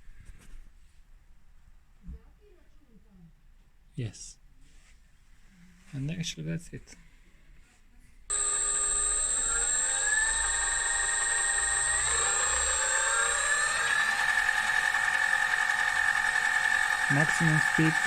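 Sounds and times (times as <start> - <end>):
high steady whistle: 8.3 - 18.0
lathe motor whining: 8.3 - 18.0.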